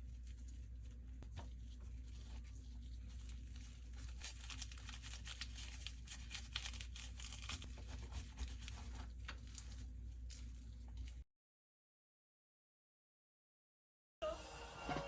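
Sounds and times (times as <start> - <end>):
packaging tearing and crinkling: 3.1 - 11.2.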